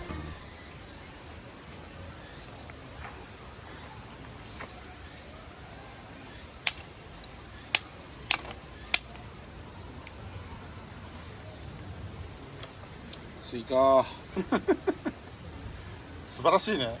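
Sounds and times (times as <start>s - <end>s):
steady low background noise: 0.0s - 17.0s
sharp clicks or knocks: 6.6s - 9.3s.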